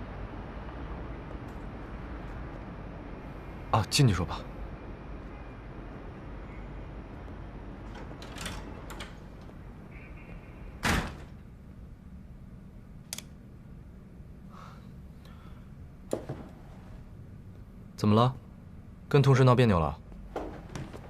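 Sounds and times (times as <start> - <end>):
low steady hum: 0.0 - 21.0
door shutting with a thud: 10.8 - 11.4.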